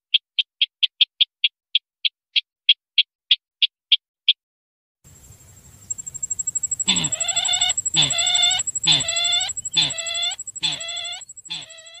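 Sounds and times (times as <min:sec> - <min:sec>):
faint high whine: 0:05.1 - 0:12.0
clucking bird lure calls: 0:06.0 - 0:12.0.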